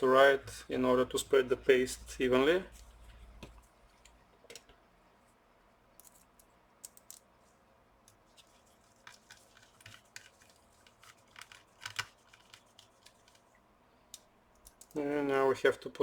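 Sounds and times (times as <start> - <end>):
light clicks and taps of metal parts: 6.0 - 7.3, 14.1 - 15.0.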